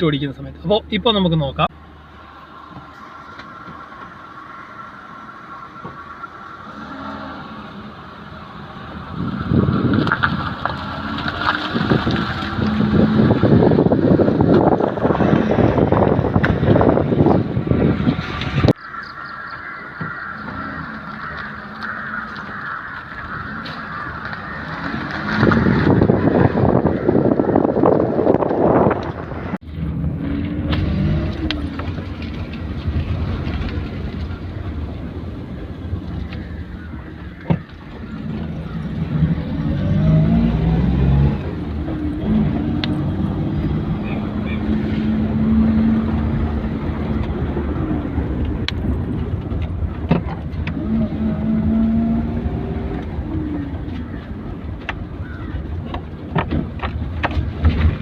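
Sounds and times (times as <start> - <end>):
road noise: 0.0 - 58.0.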